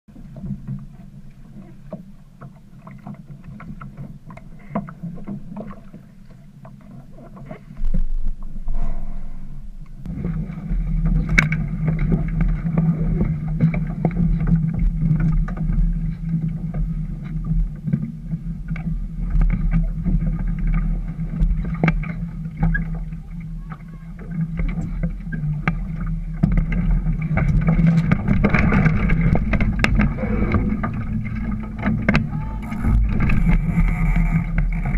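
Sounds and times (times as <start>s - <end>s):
knocks and clicks on sailboat: 0.1s - 9.0s, 9.8s - 34.9s
steady low hum: 0.1s - 34.9s
low rumble: 7.7s - 34.9s.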